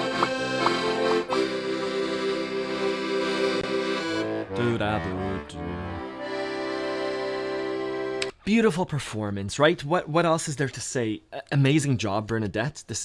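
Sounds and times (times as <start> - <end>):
accordion playing: 0.0 - 8.3.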